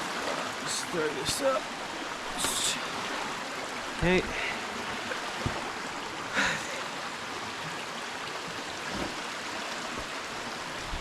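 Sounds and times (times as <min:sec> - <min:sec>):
stream flowing over rocks: 0:00.0 - 0:11.0.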